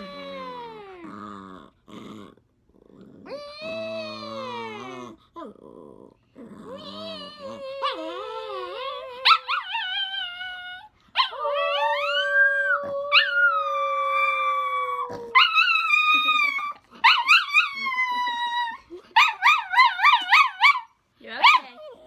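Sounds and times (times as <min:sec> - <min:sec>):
dog howling: 0:03.2 - 0:05.1, 0:06.7 - 0:20.9
dog yipping: 0:19.2 - 0:21.8.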